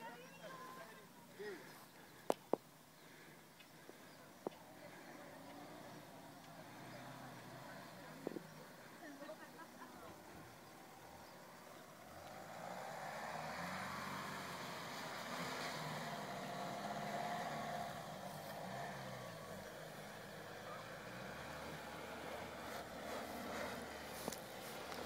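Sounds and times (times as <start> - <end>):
car engine revving: 4.5 - 9.0, 9.9 - 25.0.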